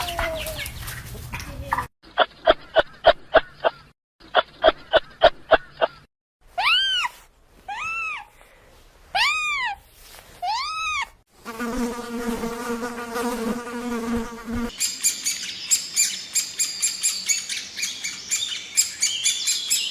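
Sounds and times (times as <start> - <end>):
small birds chirping: 0.0 - 6.1, 14.7 - 19.9
flying insect buzzing: 11.4 - 14.8.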